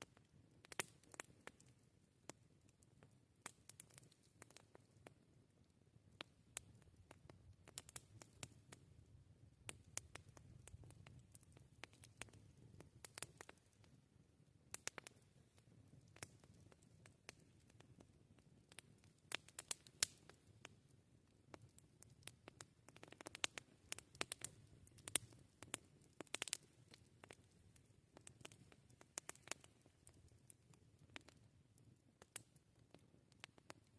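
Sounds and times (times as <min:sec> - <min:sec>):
campfire crackling: 0:00.0 - 0:33.9.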